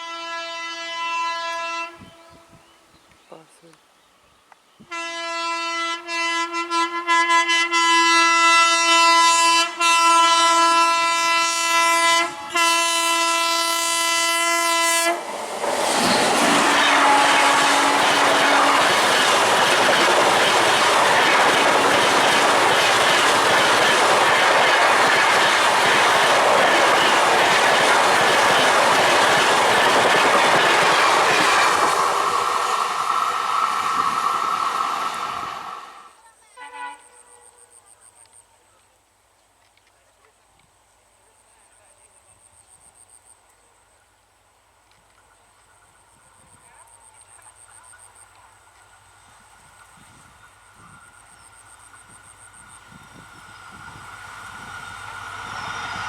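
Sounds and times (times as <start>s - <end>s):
locomotive horn blast: 0.0s - 2.6s, 4.9s - 15.3s, 16.4s - 19.1s
train passing at speed: 6.1s - 36.2s, 45.4s - 56.0s.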